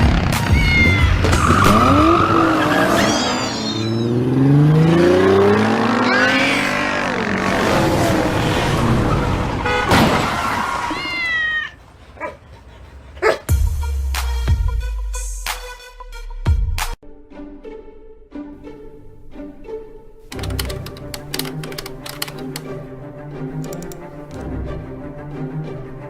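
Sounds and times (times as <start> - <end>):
cat meowing: 0.4 - 1.3, 10.9 - 11.8
car engine revving: 1.2 - 9.8.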